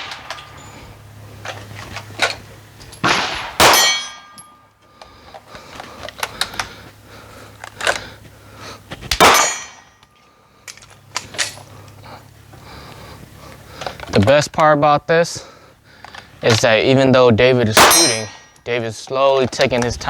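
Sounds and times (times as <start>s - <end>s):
pistol shots: 0.0s - 0.7s, 3.0s - 4.4s, 9.1s - 9.9s, 17.7s - 18.5s
steel targets clanging: 0.0s - 4.8s, 9.1s - 10.2s, 16.1s - 20.0s.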